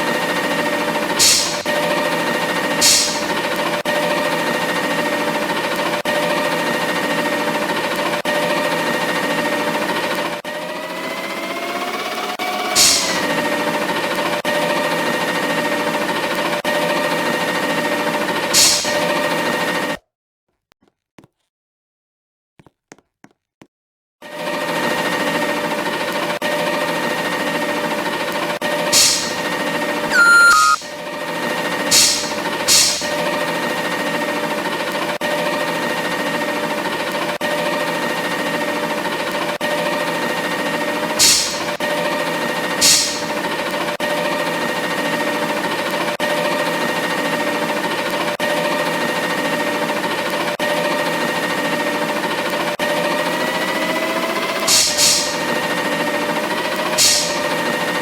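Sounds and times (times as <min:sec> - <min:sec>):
garbage truck running: 0:00.0 - 0:19.9, 0:24.2 - 0:30.8, 0:31.4 - 0:58.0
short hisses: 0:01.2 - 0:01.7, 0:02.8 - 0:03.3
brief tone: 0:30.1 - 0:30.9.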